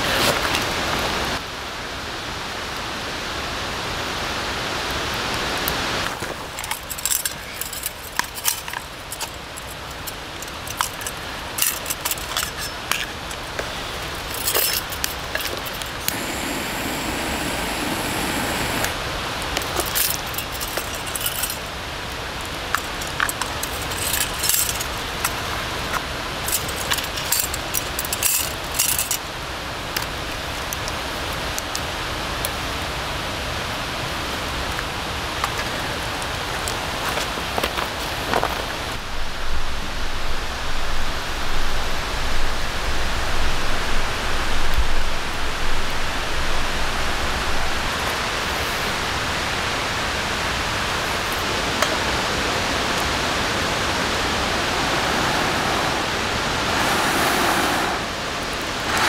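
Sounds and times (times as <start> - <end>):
steady outdoor hiss: 0.0 - 59.0
metallic clinks and rattles: 6.5 - 16.1, 19.7 - 21.8, 22.7 - 25.4, 26.4 - 29.2
loud rushing sound: 16.1 - 19.1, 54.7 - 59.0.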